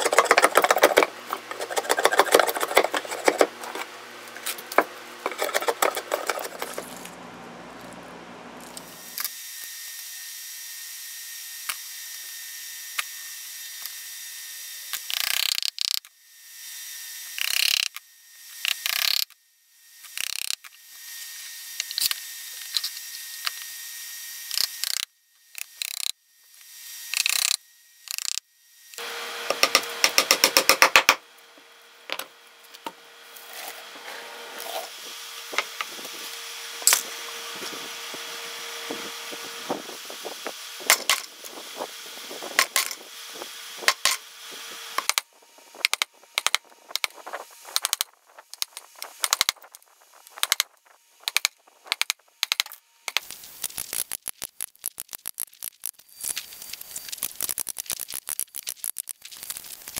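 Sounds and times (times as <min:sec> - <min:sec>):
chisel cutting wood: 0:00.0 - 0:07.0, 0:29.0 - 0:49.6.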